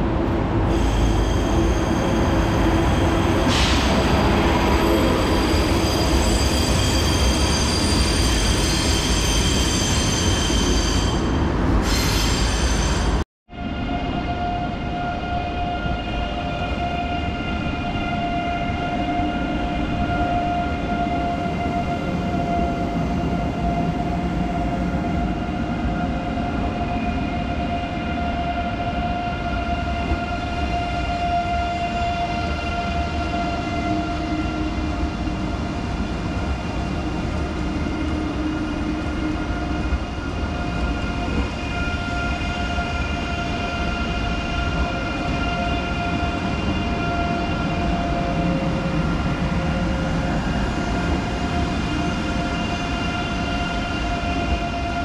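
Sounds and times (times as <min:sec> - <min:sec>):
electric rail vehicle humming: 0:12.7 - 0:55.0.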